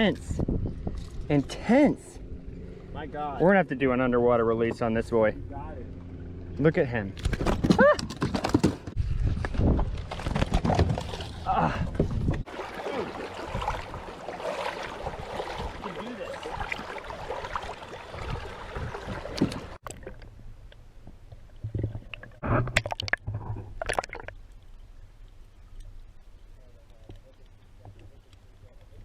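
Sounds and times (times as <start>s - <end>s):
low hum: 0.2s - 7.5s
water sloshing and gurgling: 8.8s - 26.2s.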